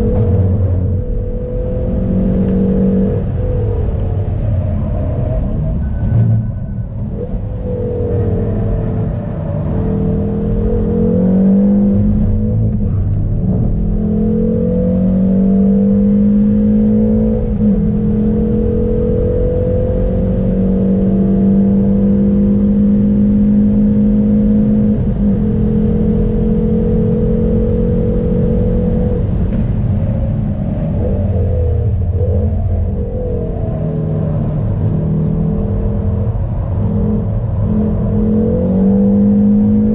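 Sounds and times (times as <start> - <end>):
road noise rumble: 0.0 - 39.9
car engine revving high: 7.6 - 29.9, 30.6 - 39.9.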